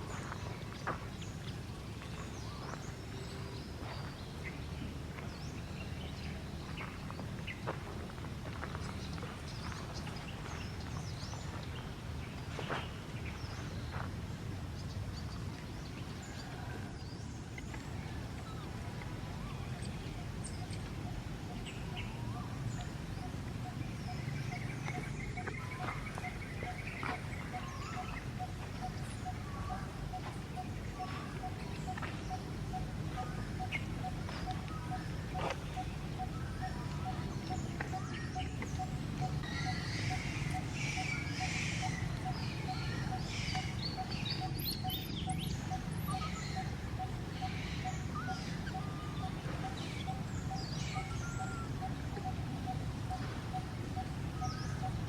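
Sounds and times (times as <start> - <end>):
low steady rumble: 0.0 - 55.0
bird-like chirps and calls: 14.8 - 55.0.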